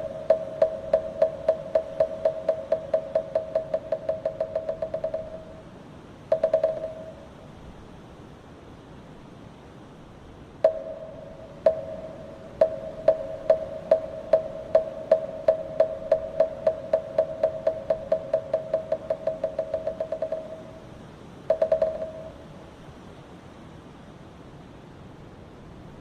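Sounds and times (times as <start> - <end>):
wooden fish drum strokes: 0.0 - 5.6, 6.3 - 7.2, 10.7 - 20.8, 21.5 - 22.4.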